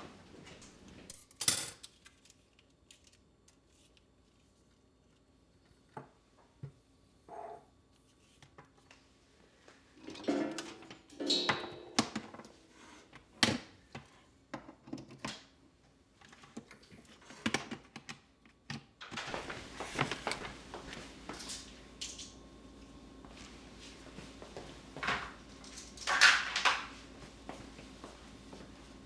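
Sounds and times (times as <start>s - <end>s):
objects clattering: 10.0s - 13.2s, 19.0s - 29.0s.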